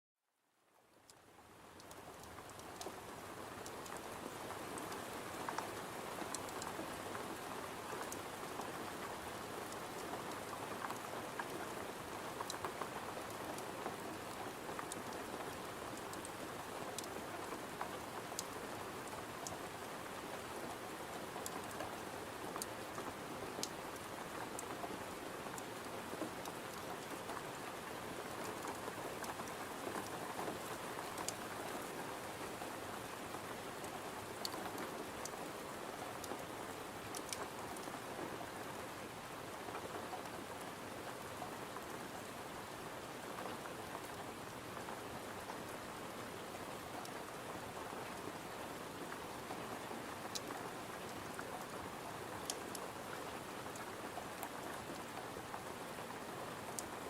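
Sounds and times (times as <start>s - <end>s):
rain pattering: 0.6s - 57.0s
faint sharp clicks: 1.8s - 3.0s, 22.6s - 24.7s, 28.5s - 32.0s, 36.2s - 37.9s.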